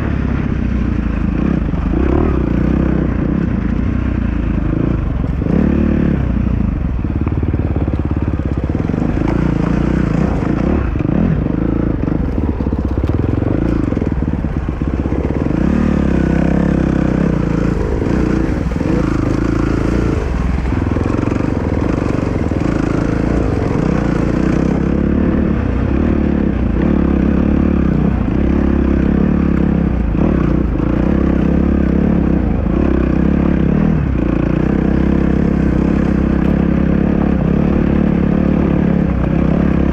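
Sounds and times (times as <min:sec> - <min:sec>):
dirt bike engine revving: 0:01.1 - 0:03.6, 0:04.4 - 0:39.9.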